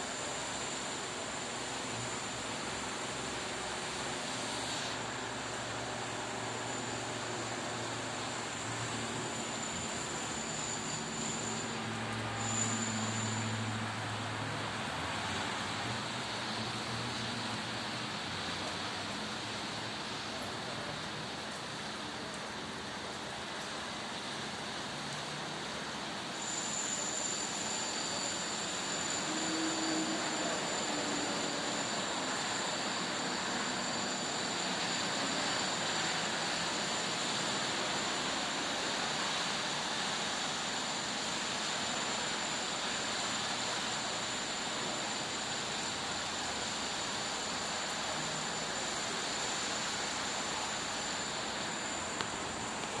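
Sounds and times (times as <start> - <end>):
thin high whine: 0.0 - 14.1, 26.3 - 53.0.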